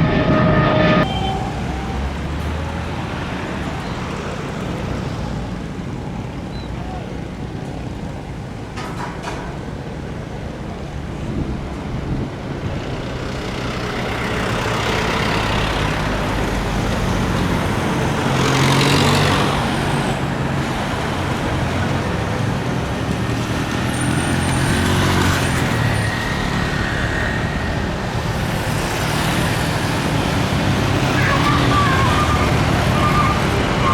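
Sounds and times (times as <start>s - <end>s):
faint high whine: 0.0s - 2.3s
roar of engines and traffic: 0.0s - 33.9s.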